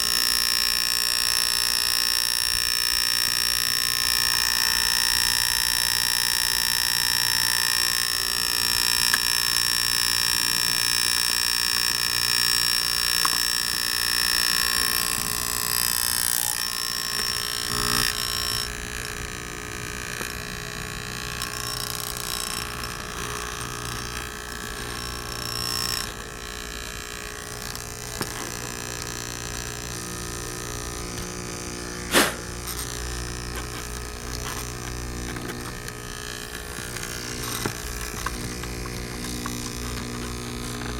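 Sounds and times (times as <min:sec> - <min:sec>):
electric air pump whining: 0:00.0 - 0:40.9
sharp click: 0:32.1 - 0:32.5.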